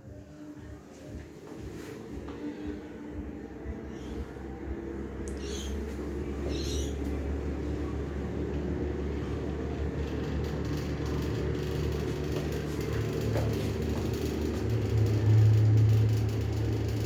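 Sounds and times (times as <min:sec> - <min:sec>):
fan motor humming: 0:00.0 - 0:17.0.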